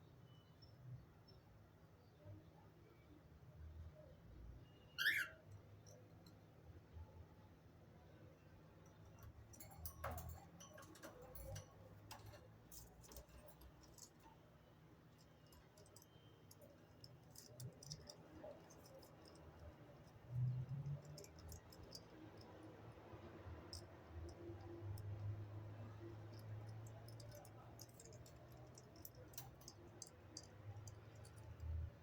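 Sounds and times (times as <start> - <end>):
light clicks and ticks: 8.8 - 32.0.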